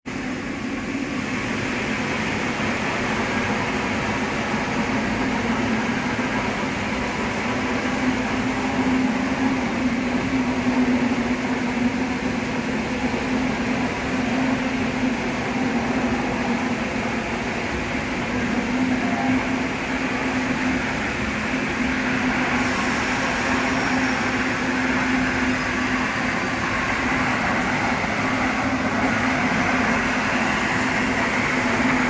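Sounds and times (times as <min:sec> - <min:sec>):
floor scrubber machine hum: 0:20.2 - 0:32.0.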